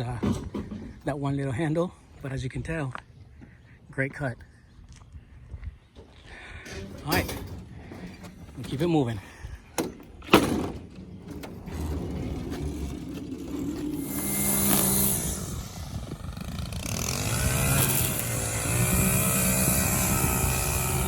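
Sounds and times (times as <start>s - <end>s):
engine revving: 11.6s - 21.0s.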